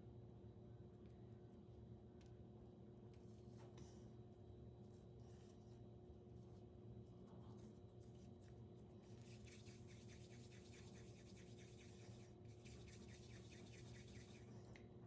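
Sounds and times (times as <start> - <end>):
faint rhythmic scraping: 7.3 - 14.6.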